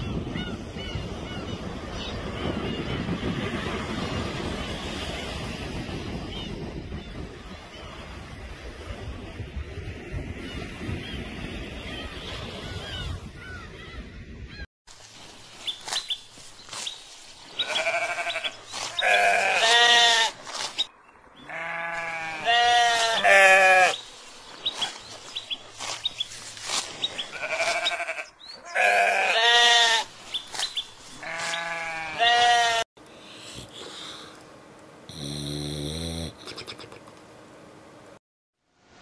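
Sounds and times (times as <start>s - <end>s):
wind: 0.0s - 39.0s
lamb bleating: 17.6s - 20.4s, 21.5s - 24.0s, 27.3s - 30.1s, 31.2s - 32.8s.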